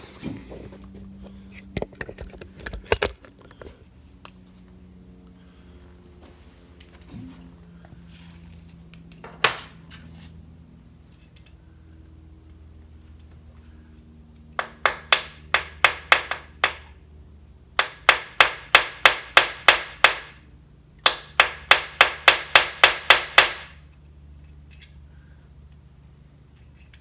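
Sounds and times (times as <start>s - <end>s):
hammer tapping: 14.6s - 16.9s, 17.8s - 20.4s, 21.0s - 23.7s.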